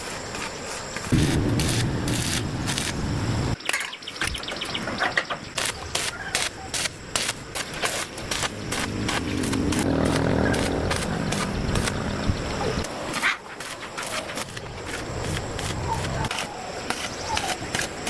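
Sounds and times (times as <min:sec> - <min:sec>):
motor rumbling: 0:01.1 - 0:03.6.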